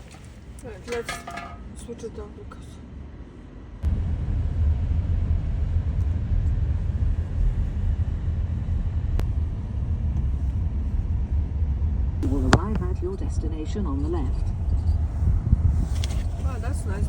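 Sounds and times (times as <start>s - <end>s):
car cabin rumble: 3.8s - 17.0s.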